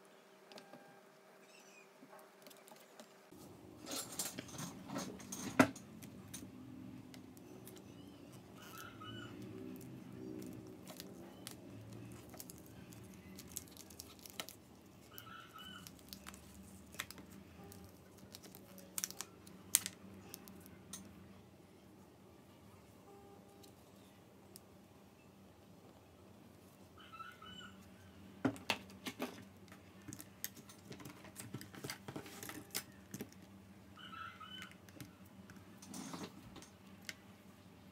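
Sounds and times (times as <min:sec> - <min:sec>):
low steady hum: 0:00.0 - 0:37.9.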